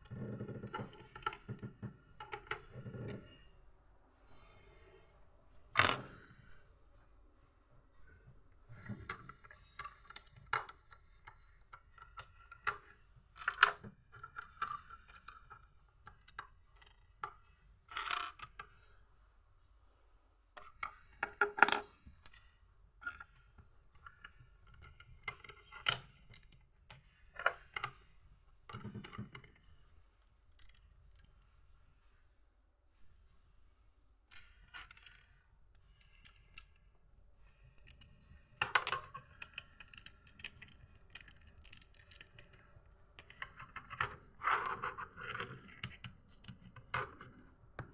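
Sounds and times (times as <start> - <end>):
plastic bricks clicking and clattering: 37.7 - 47.9.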